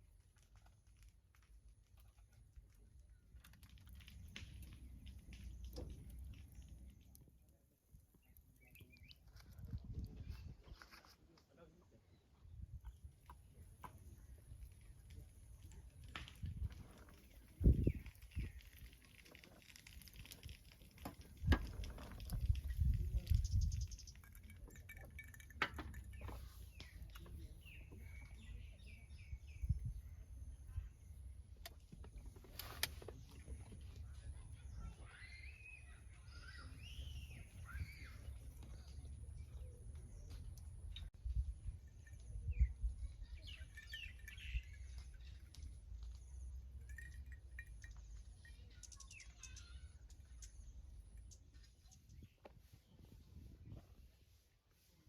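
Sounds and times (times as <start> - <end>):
small birds chirping: 4.0 - 54.5
wind rumble on microphone: 9.3 - 10.8, 14.1 - 19.0, 19.9 - 31.3, 36.8 - 45.8, 51.9 - 54.2
bird chirping: 34.0 - 41.1, 41.8 - 53.2.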